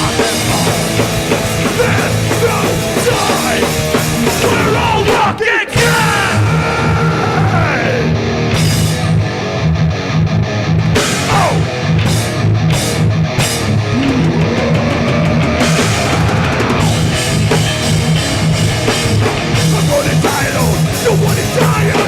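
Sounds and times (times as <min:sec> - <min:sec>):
drum kit beat: 0:00.0 - 0:06.7, 0:10.9 - 0:22.0
bass guitar: 0:00.0 - 0:22.0
distorted electric guitars: 0:00.0 - 0:22.0
sliding guitar notes: 0:05.8 - 0:22.0.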